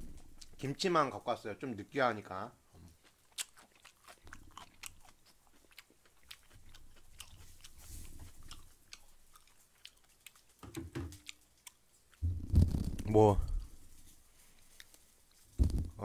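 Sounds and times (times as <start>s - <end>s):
chewing with wet mouth clicks: 2.8s - 12.2s
dull thumps: 12.2s - 13.7s, 15.6s - 16.0s.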